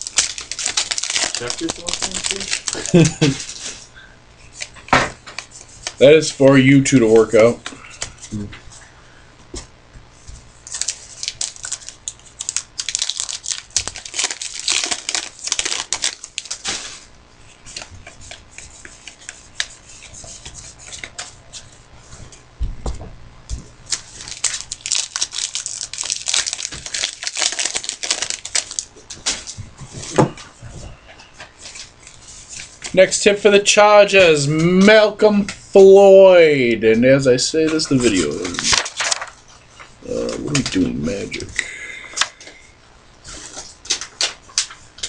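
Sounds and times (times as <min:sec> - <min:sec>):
card packs being torn open: 0:00.0 - 0:03.8, 0:10.6 - 0:17.0, 0:23.9 - 0:29.5, 0:37.7 - 0:39.4, 0:40.1 - 0:42.4
wrappers crinkling: 0:00.0 - 0:03.9, 0:10.6 - 0:21.8, 0:23.9 - 0:30.1, 0:37.8 - 0:41.5.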